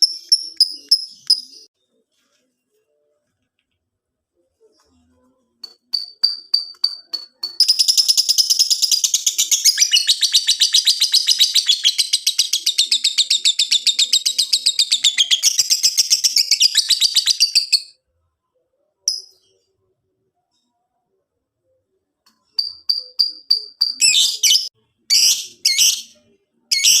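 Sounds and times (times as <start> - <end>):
rapid high chirps: 5.6 - 17.9, 22.5 - 27.0.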